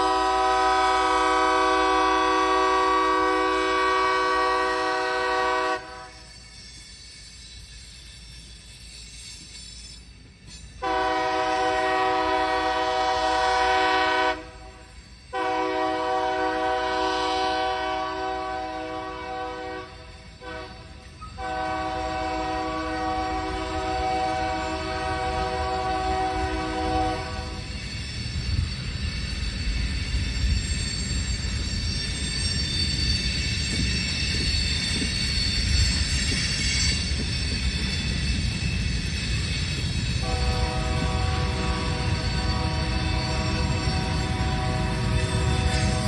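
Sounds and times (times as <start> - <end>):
locomotive air horn blasts: 0.0 - 6.2, 10.8 - 27.6, 40.2 - 46.0
low rumble of approaching train: 0.0 - 46.0.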